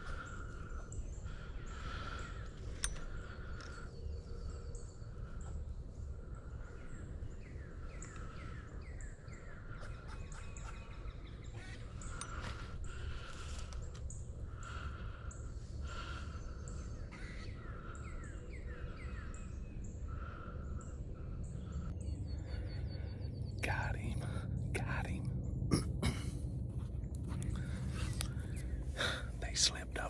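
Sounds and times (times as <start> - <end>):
birds chirping and whistling: 6.5 - 25.6.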